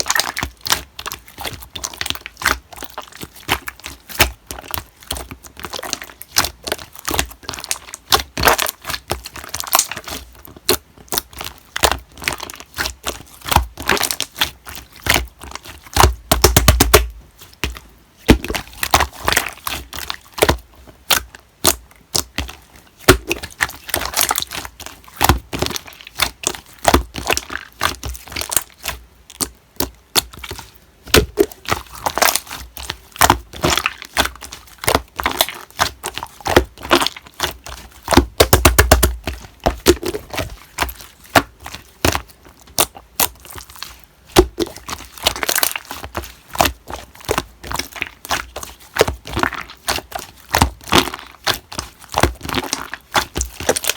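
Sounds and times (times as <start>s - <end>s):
slime crackling and popping: 0.0s - 53.9s.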